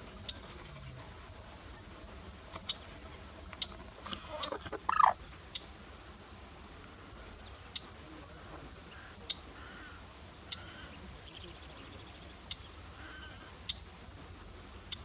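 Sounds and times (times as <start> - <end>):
bird harsh chattering: 4.2 - 5.2
bird ticking notes: 4.3 - 5.7, 12.4 - 12.7
bird rapid trill: 4.4 - 5.2.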